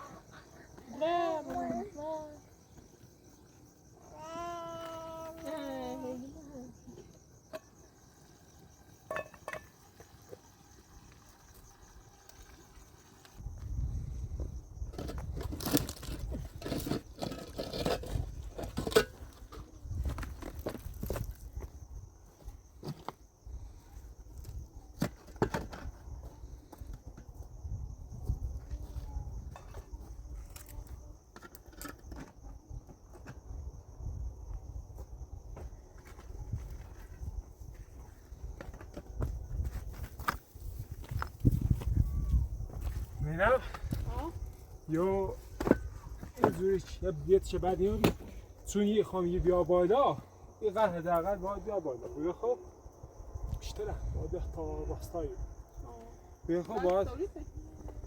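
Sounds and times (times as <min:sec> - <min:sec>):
crickets chirping: 0:00.0 - 0:58.0
high insect trill: 0:00.0 - 0:58.0
wind rumble on microphone: 0:13.4 - 0:22.7, 0:23.4 - 0:31.3, 0:32.3 - 0:48.5, 0:52.7 - 0:58.0.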